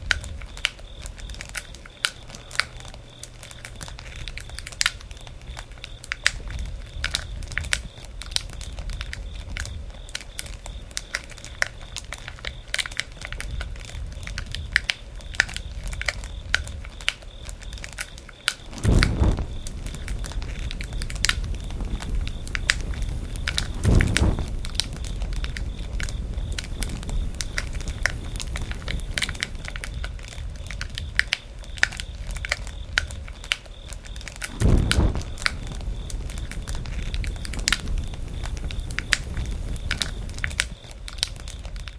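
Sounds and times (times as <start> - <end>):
campfire crackling and popping: 18.6 - 29.9, 34.4 - 40.7
low rumble of flames: 18.6 - 30.0, 34.4 - 40.7.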